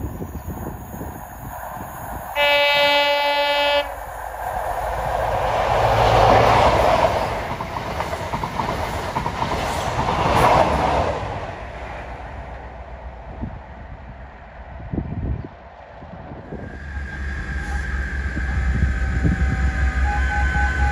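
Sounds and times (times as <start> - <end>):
train engine and wheels passing: 0.0 - 20.9
train horn blast: 2.4 - 4.0, 17.0 - 20.9
wheels clicking over rail joints: 4.6 - 10.9.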